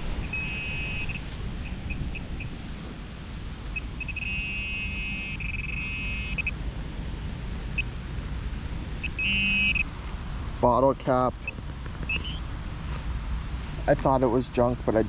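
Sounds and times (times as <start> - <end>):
metal detector tone: 0.0 - 2.5, 3.7 - 6.6, 9.0 - 9.9
wind rumbling on microphone: 0.0 - 15.0
metal detector blips: 0.2 - 2.5, 3.6 - 6.6, 9.0 - 10.2, 11.4 - 12.4.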